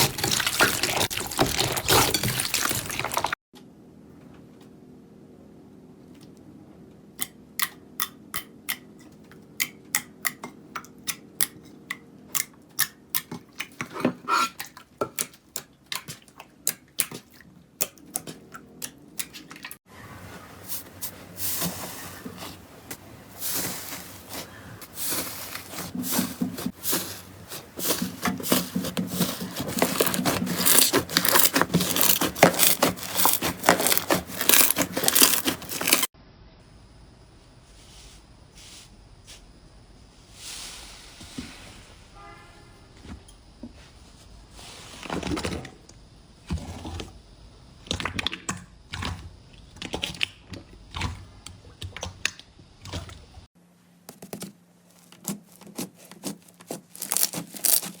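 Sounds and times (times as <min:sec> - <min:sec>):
slime crackling and crunching: 0:00.0 - 0:03.4, 0:23.4 - 0:36.1, 0:54.4 - 0:58.0.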